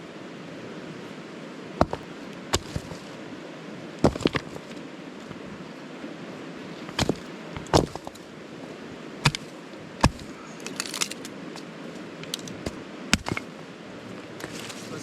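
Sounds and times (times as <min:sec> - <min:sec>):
creek water running: 0:00.0 - 0:15.0
sticks and firewood knocking: 0:01.8 - 0:03.1, 0:04.0 - 0:05.4, 0:06.8 - 0:08.3, 0:09.2 - 0:11.6, 0:12.2 - 0:13.5, 0:14.3 - 0:15.0.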